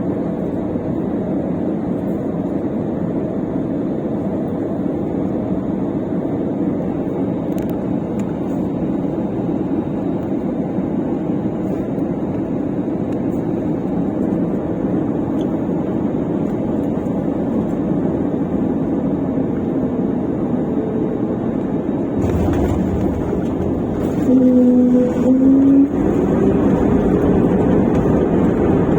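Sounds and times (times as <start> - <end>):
airliner cabin engine and airflow noise: 0.0 - 28.9
low rumble: 21.9 - 28.9.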